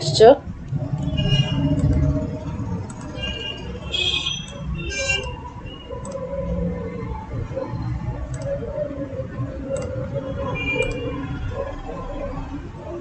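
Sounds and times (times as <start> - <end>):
computer mouse clicks: 0.7 - 2.1, 2.8 - 3.7, 6.0 - 6.2, 8.3 - 8.6, 9.7 - 10.0, 10.8 - 11.0.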